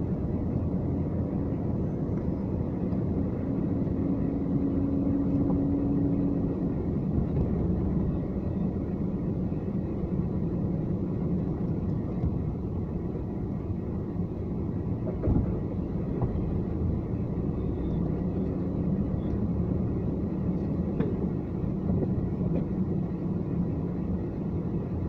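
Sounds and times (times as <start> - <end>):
car engine rumble and road noise: 0.0 - 25.0.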